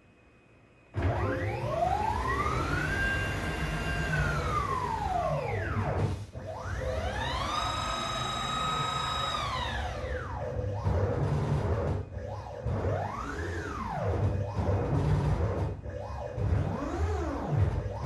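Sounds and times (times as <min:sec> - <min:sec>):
router motors whining: 0:06.7 - 0:10.1.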